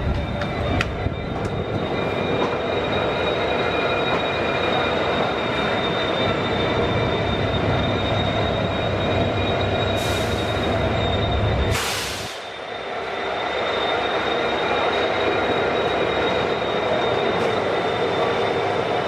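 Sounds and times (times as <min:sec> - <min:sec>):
train running gear rumble: 0:00.0 - 0:19.0
high-pitched wheel squeal: 0:00.1 - 0:19.0
burst of hiss: 0:11.7 - 0:12.5.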